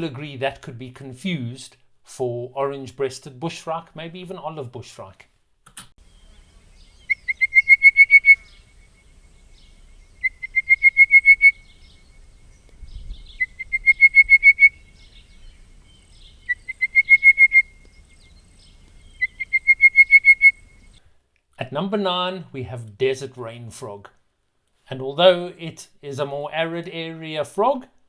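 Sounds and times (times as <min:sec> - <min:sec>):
faint frog calls: 0:06.0 - 0:21.0
frog trilled calls: 0:06.1 - 0:21.0.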